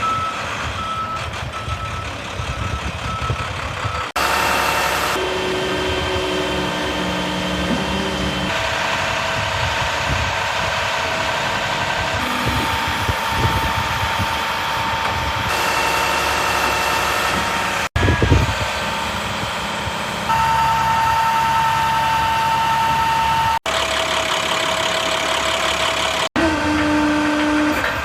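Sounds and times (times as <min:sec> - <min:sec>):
truck backup alarm beeping: 0:00.0 - 0:10.1, 0:11.2 - 0:19.4, 0:20.2 - 0:26.3
diesel engine running: 0:00.0 - 0:28.0
truck engine idling: 0:00.0 - 0:28.0
whining tones: 0:12.2 - 0:19.1.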